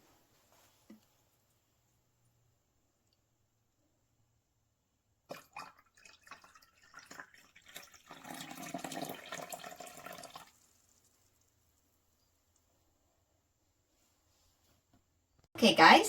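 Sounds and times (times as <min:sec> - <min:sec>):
liquid pouring: 0:05.3 - 0:11.5
coffee maker water sputtering: 0:05.3 - 0:11.6.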